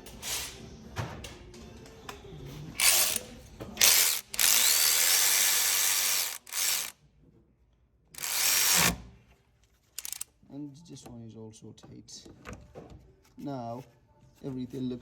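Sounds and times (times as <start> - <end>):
cordless power tool driving bolts: 2.8 - 3.2, 3.8 - 6.9, 8.2 - 9.0, 10.0 - 10.2.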